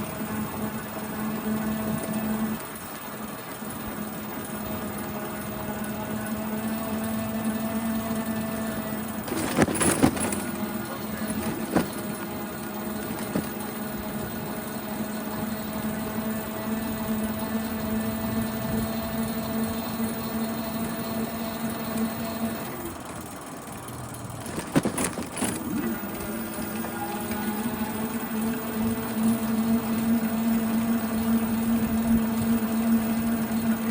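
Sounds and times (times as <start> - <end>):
bike whirring whine: 0.0 - 33.9
sharp clicks or rattles: 24.2 - 25.7.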